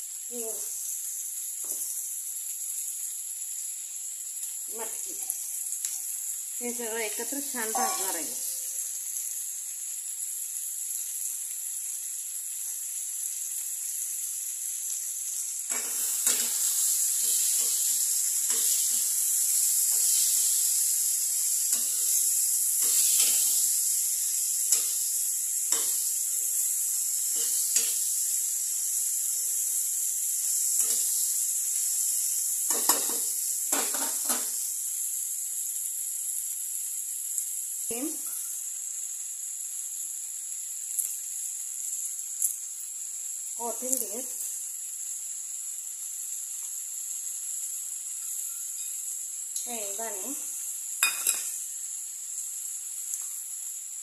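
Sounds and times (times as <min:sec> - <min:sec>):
beans sizzling in oil: 0:00.0 - 0:54.0
steel spatula scraping a pan: 0:21.7 - 0:23.7.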